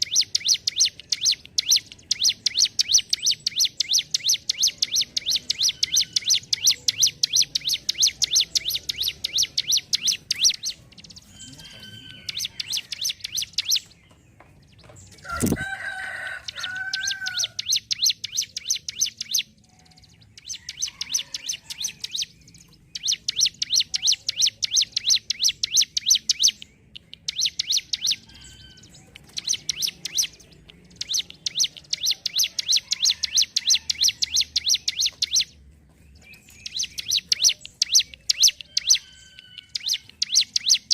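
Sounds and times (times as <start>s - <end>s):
bird rapid ticking song: 0.0s - 40.9s.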